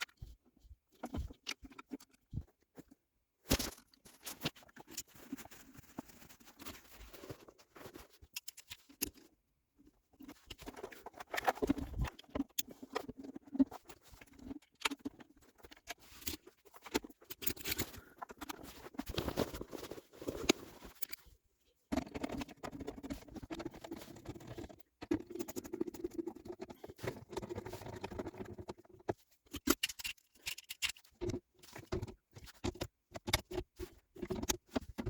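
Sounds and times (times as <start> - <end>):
scratchy rustling: 3.5 - 8.5
small clicks and taps of parts: 8.2 - 9.3, 10.2 - 19.3, 21.9 - 35.0.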